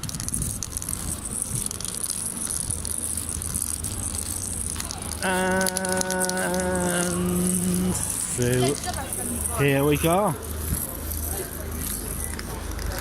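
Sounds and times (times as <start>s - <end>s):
scattered clicks: 0.0s - 9.6s, 11.1s - 13.0s
street noise: 0.0s - 13.0s.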